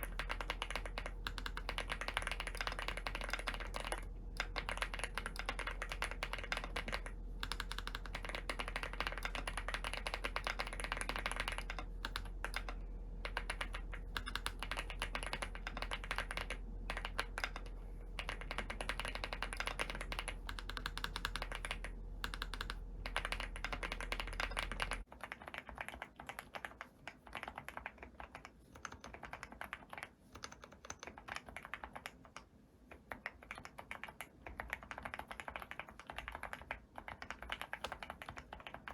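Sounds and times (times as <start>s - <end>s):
fast typing on keyboard: 0.0s - 38.9s
low background hum: 0.0s - 38.9s
spaced-out keystrokes: 0.0s - 38.9s.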